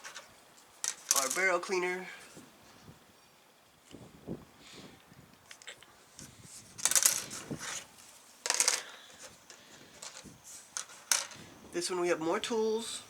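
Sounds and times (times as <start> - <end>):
plastic parts clicking: 8.4 - 10.2.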